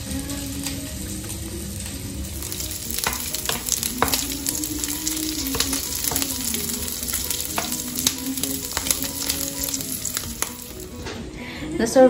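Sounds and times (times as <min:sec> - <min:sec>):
pork sizzling in hot oil: 0:00.0 - 0:11.2
wooden spatula clicking on pan: 0:02.4 - 0:11.0.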